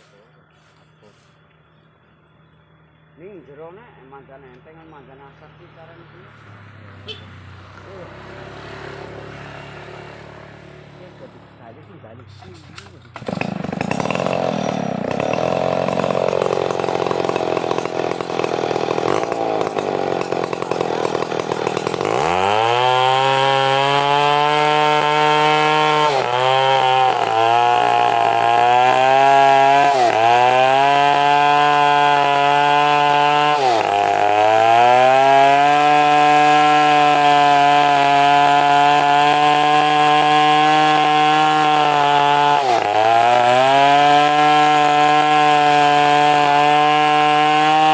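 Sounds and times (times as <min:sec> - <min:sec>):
chainsaw cutting a log: 0:12.8 - 0:47.9.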